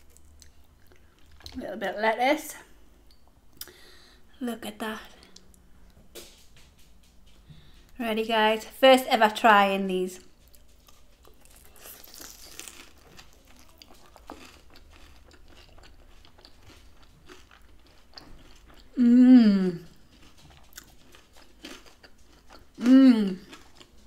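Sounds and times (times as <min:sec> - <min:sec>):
close-up chewing: 0:10.2 - 0:19.0, 0:19.7 - 0:24.0.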